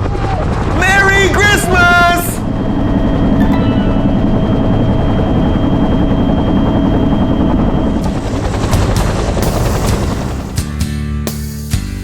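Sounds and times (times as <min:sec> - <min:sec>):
helicopter rotor beating: 0:00.0 - 0:10.8
high turbine whine: 0:01.0 - 0:10.6.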